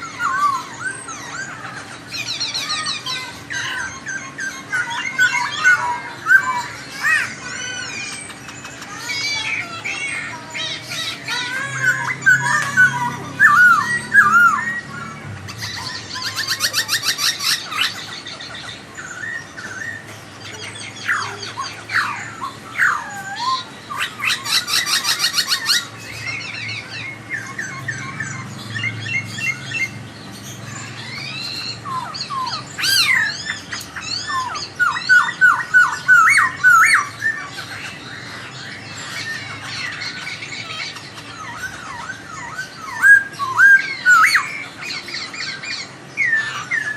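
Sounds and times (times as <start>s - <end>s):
bird singing whistled phrases: 10.8s - 30.0s, 38.7s - 46.9s.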